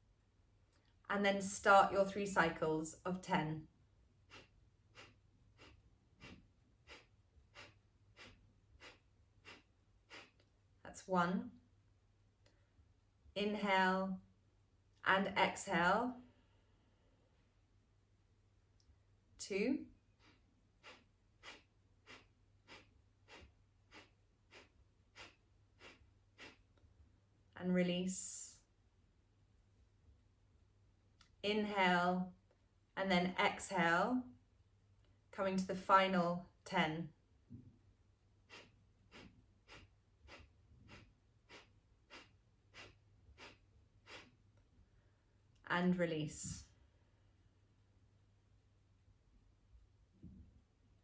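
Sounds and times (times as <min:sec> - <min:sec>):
sharp nasal exhalations: 0:04.2 - 0:10.5, 0:20.2 - 0:26.7, 0:38.4 - 0:44.4.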